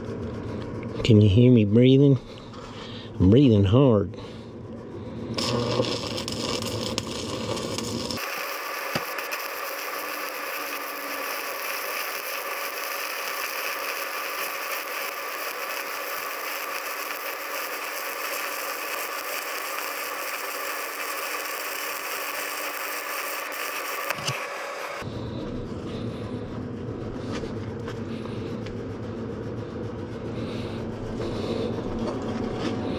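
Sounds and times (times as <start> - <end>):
welding arc crackling hiss: 5.3 - 25.0
low rumble: 25.0 - 32.9.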